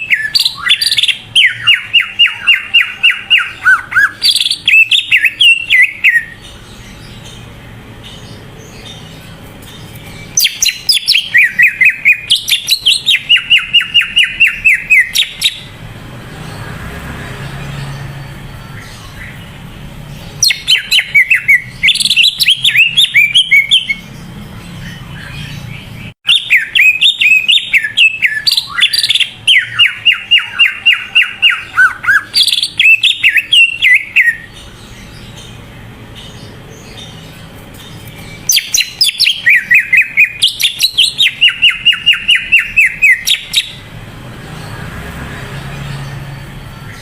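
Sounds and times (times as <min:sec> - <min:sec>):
bird whistling and trilling: 0:00.0 - 0:06.5, 0:09.8 - 0:15.8, 0:20.2 - 0:24.1, 0:24.8 - 0:35.5, 0:37.8 - 0:43.9.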